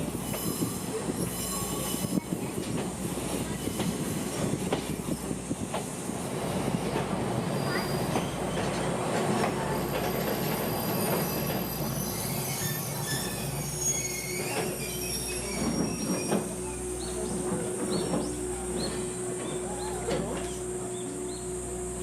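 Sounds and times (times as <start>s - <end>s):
train wheels rumbling on track: 0.0s - 22.0s
high wheel squeals: 10.1s - 16.8s.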